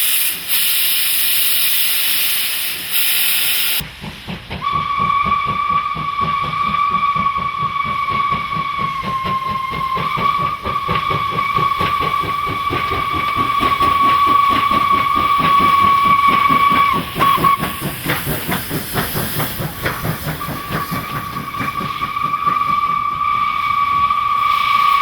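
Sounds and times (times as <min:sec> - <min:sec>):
steam locomotive exhaust beats: 0:00.0 - 0:25.0
steam whistle: 0:04.6 - 0:17.8, 0:20.3 - 0:25.0.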